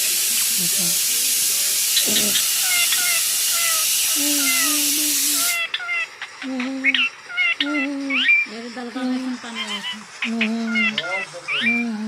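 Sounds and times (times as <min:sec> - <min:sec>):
steady hiss: 0:00.0 - 0:05.6
parrot chirping and whistling: 0:01.9 - 0:06.2, 0:09.6 - 0:11.9.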